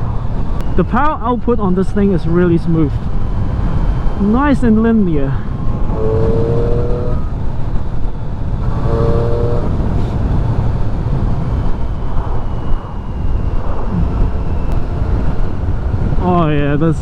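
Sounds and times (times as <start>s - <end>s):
wind rush on microphone: 0.0s - 17.0s
motorcycle engine running: 5.4s - 11.8s.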